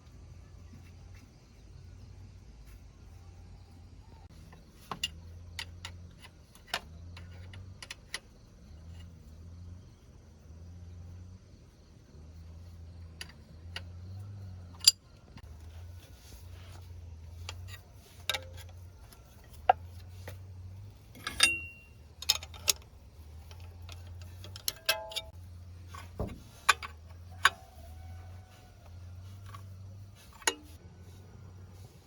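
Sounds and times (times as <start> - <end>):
metallic clinks and taps: 17.4 - 30.8.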